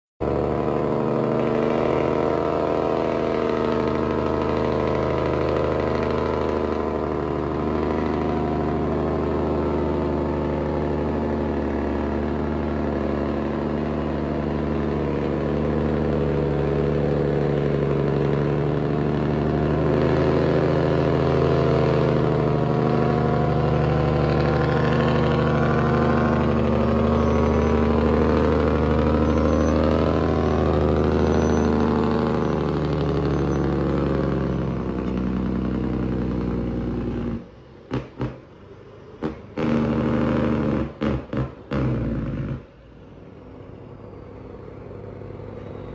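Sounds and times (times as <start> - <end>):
truck engine idling: 0.2 - 45.9.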